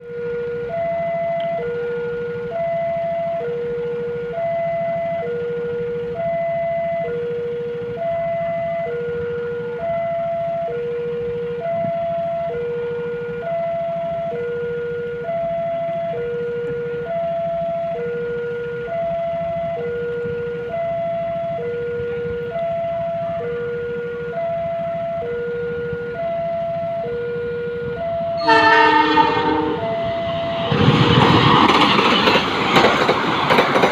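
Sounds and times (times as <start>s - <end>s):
two-tone railway warning alarm: 0.0s - 33.9s
locomotive horn blowing: 20.9s - 30.5s.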